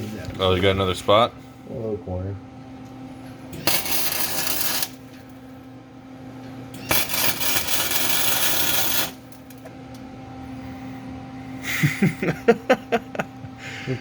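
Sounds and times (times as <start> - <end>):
welding arc crackling: 3.6 - 5.2, 6.9 - 9.6.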